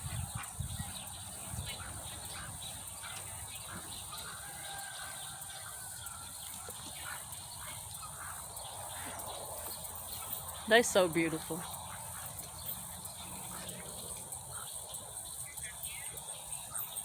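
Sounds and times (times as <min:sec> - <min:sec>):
fowl calling: 0:00.0 - 0:09.7.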